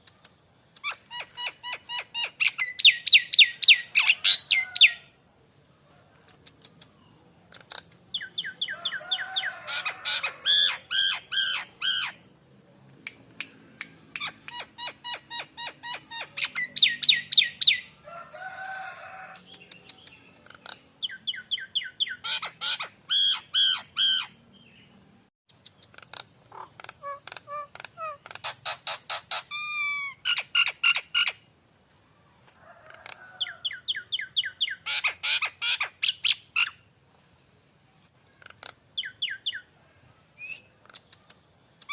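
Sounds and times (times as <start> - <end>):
myna whistled calls: 0.8 - 5.0, 14.2 - 17.9.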